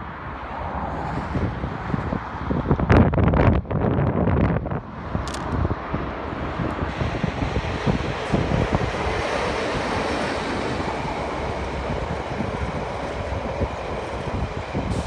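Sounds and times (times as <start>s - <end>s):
train rumbling past on rails: 0.1s - 15.0s.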